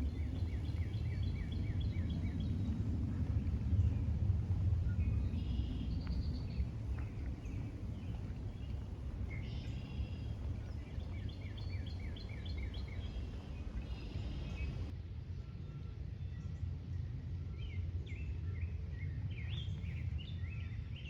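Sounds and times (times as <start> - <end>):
steady low rumble: 0.0 - 15.0
birds calling: 7.4 - 14.9.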